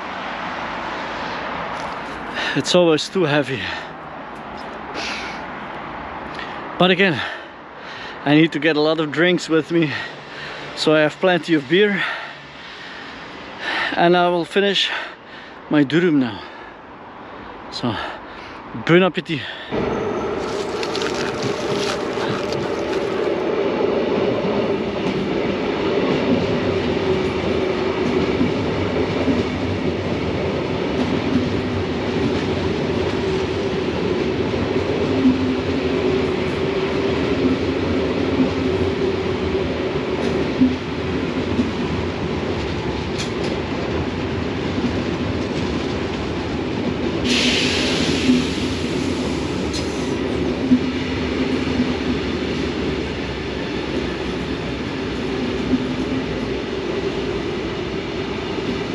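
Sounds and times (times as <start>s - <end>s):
train running on tracks: 0.0s - 58.9s
short hiss: 47.3s - 49.2s.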